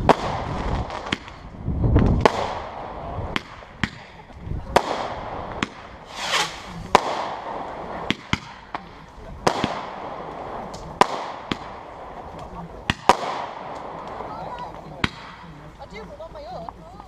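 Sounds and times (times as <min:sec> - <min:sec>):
fireworks bangs: 0:00.0 - 0:15.5
firework whoosh: 0:04.6 - 0:08.8.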